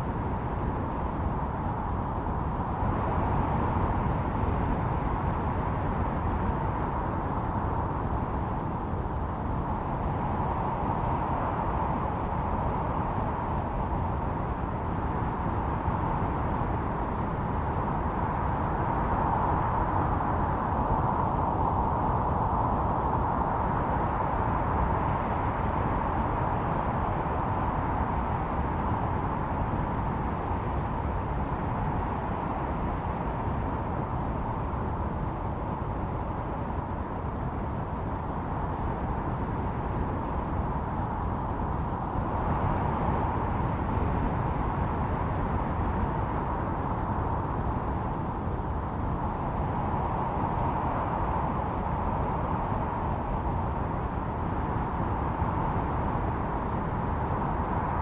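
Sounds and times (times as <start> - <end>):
howling wind: 0.0 - 58.0.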